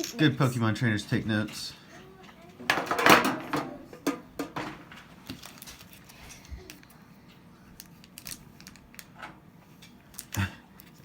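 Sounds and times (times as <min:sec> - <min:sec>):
paper and plastic packaging rustling: 0:04.6 - 0:06.9, 0:07.6 - 0:09.2.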